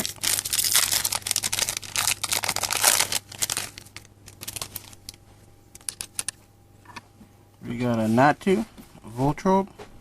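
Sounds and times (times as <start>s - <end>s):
foil wrapper crinkling and tearing: 0.0s - 5.2s, 5.8s - 6.3s.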